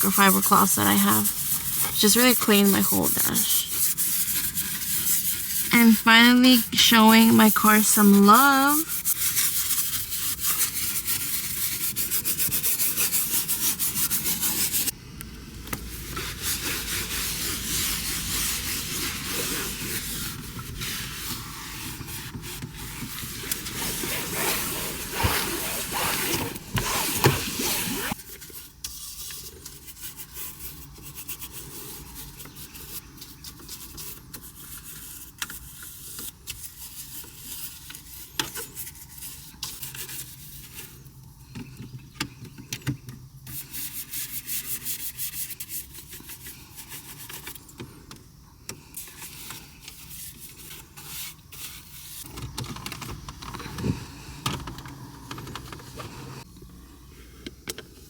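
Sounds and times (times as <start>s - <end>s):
brush scrubbing plastic: 0.0s - 14.9s, 15.9s - 41.0s.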